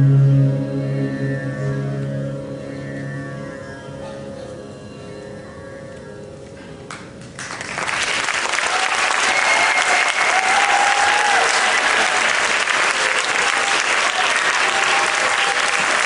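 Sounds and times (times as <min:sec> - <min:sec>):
music: 0:00.0 - 0:07.7
audience applause: 0:07.2 - 0:16.0.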